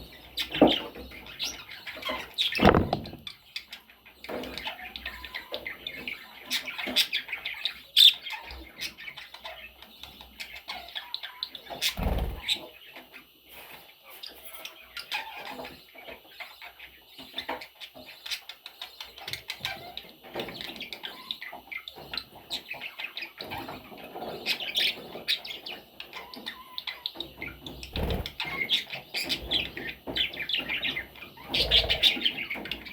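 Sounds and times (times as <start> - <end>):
budgies chirping and chattering: 0.2 - 13.2, 14.4 - 32.9
wing flutters: 2.6 - 3.2, 11.9 - 12.6, 27.8 - 28.5
dull thump: 2.6 - 3.3.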